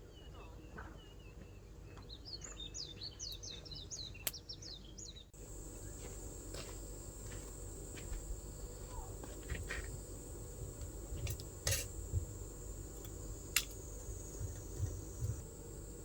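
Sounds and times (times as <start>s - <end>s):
insects trilling: 5.4s - 16.0s.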